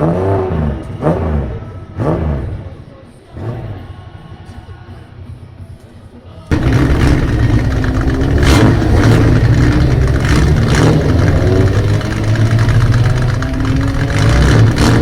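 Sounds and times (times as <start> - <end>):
loud car exhaust revving: 0.0 - 2.6, 6.5 - 15.0.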